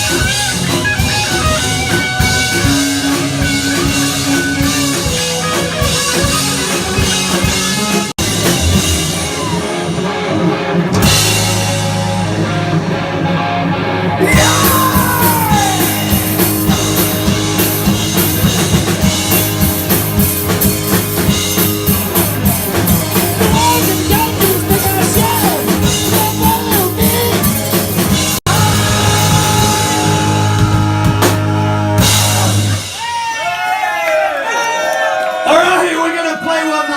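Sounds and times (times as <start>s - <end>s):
pounding drum beat: 0.0s - 12.1s, 14.2s - 33.4s
live rock band playing: 0.0s - 34.0s
falling pitch glide: 8.2s - 10.5s.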